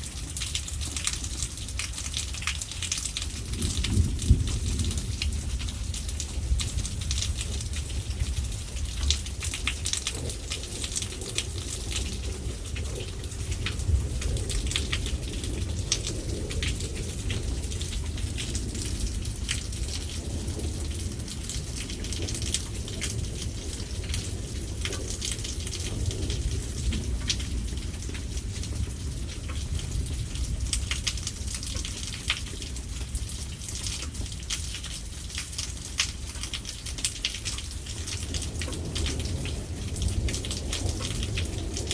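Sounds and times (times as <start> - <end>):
raindrops ticking on surface: 0.0 - 41.9.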